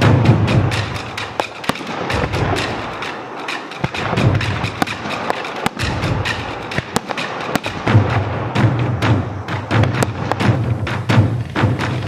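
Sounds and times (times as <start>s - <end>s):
deep firework booms: 0.0s - 3.0s, 3.8s - 12.0s
fireworks bangs and crackles: 0.0s - 12.0s.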